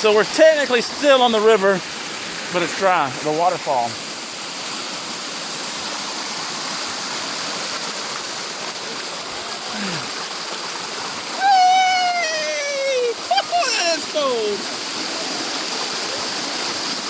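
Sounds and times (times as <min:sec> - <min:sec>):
stream rushing over rocks: 0:00.0 - 0:17.0
person calling out: 0:09.7 - 0:10.1, 0:11.3 - 0:14.7.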